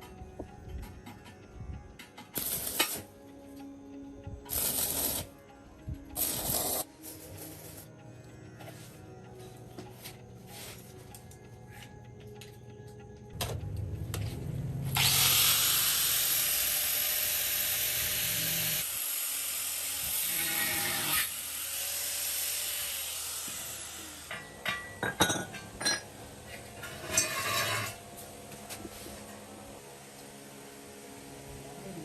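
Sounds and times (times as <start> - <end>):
workshop tool hissing: 4.5 - 5.3, 6.2 - 7.9, 14.9 - 24.8.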